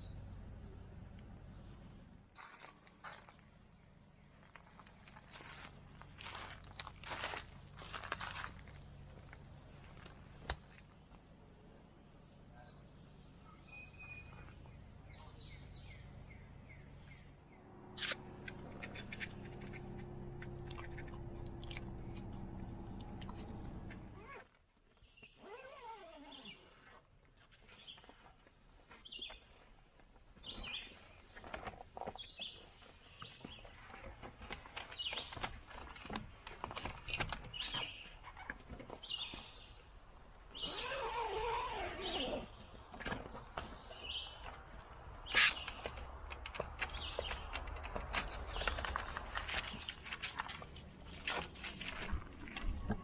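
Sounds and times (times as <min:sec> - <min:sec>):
birds chirping: 0:12.2 - 0:24.4.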